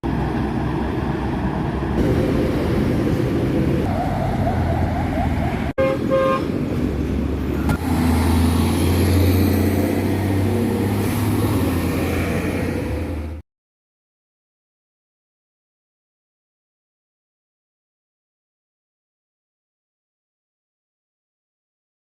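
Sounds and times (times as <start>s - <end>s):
heavy engine drone: 0.0s - 13.4s
trucks passing: 0.0s - 13.4s
vehicle horn toots: 5.8s - 6.5s.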